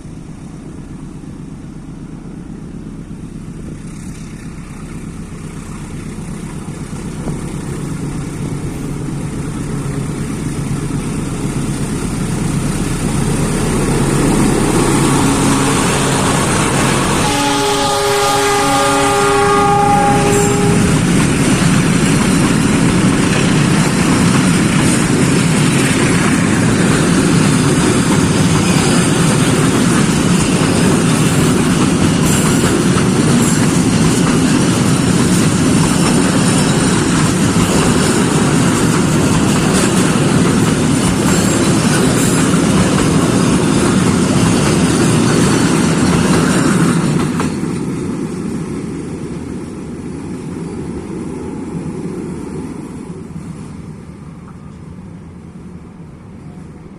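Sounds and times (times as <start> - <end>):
train wheels rumbling on rails: 0.0 - 56.9
train horn chord: 12.9 - 21.2.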